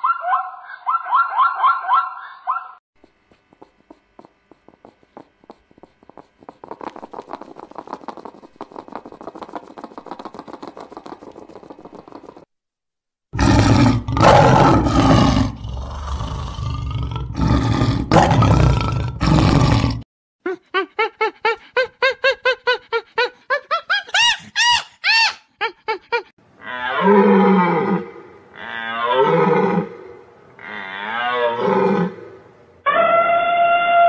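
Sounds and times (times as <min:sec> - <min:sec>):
hedgehog snuffling and chewing: 0:03.0 - 0:12.5
lion roaring: 0:13.4 - 0:20.0, 0:26.7 - 0:32.5
monkey high calls: 0:23.9 - 0:25.5.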